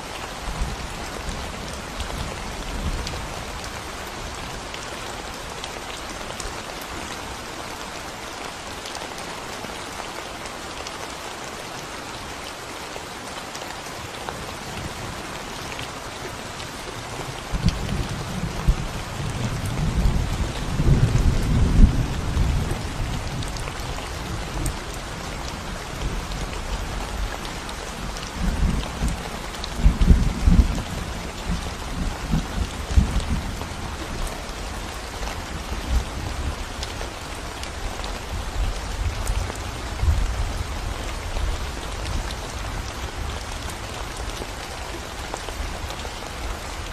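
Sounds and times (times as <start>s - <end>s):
rain on concrete road: 0.0s - 46.9s.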